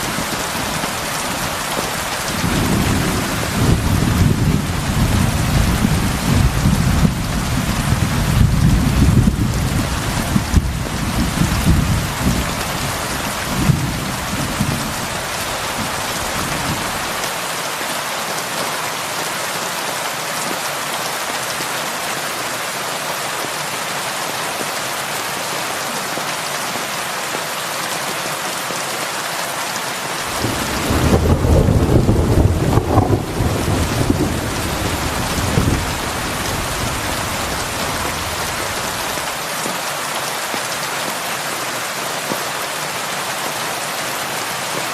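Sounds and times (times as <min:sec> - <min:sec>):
heavy rain falling: 0:00.0 - 0:44.9
deep rolling thunder: 0:02.3 - 0:15.2, 0:30.3 - 0:39.1.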